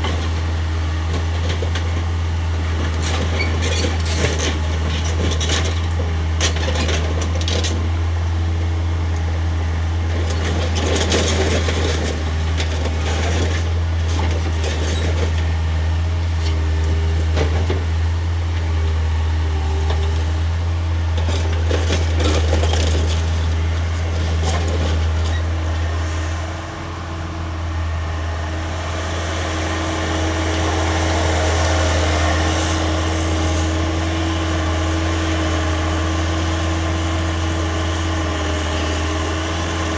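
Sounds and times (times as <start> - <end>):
diesel engine running under load: 0.0 - 39.9
engine whine: 16.2 - 39.9
knocks and clatter of demolition: 21.1 - 25.8.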